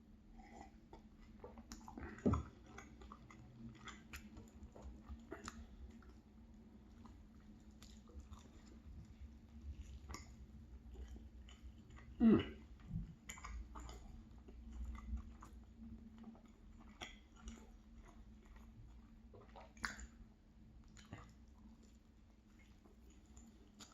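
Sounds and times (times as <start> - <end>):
chewing with mouth clicks: 0.3 - 23.9.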